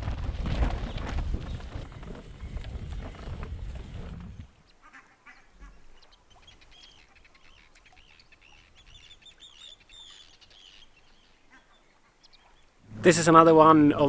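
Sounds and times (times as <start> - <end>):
wind noise on microphone: 0.0 - 4.6
flock of waterbirds calling: 0.9 - 13.8.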